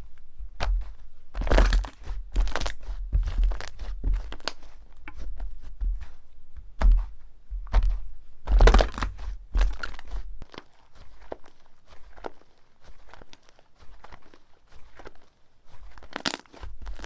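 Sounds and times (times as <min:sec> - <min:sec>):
crunchy slime squishes: 0:00.0 - 0:17.0
slime crackling and popping: 0:00.6 - 0:04.7, 0:08.4 - 0:12.4, 0:15.9 - 0:17.0.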